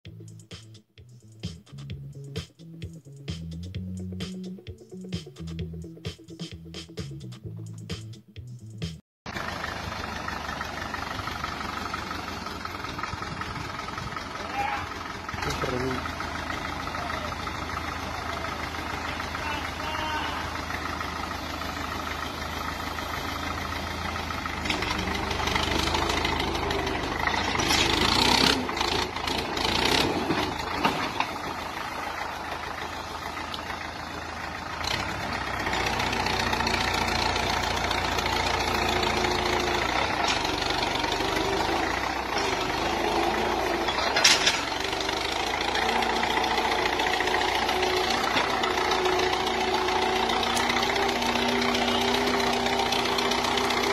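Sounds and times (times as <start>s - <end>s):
old tractor engine running: 9.3s - 53.9s
sharp clatter: 43.8s - 44.8s.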